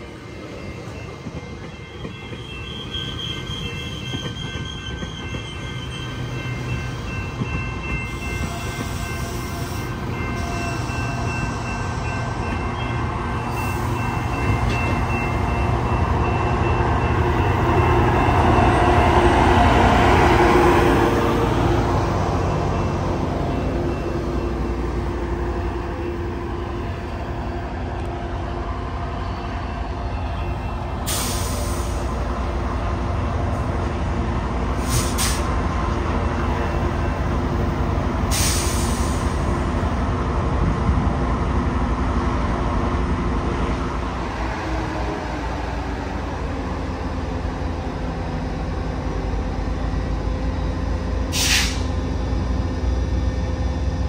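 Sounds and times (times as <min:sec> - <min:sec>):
diesel locomotive engine drone: 0:00.0 - 0:54.0
train rolling rumble: 0:00.0 - 0:54.0
short sharp hisses: 0:51.3 - 0:51.9.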